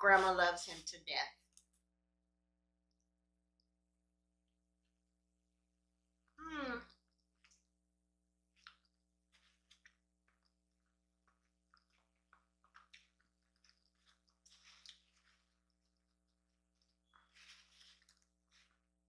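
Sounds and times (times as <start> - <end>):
faint chewing: 8.5 - 19.0.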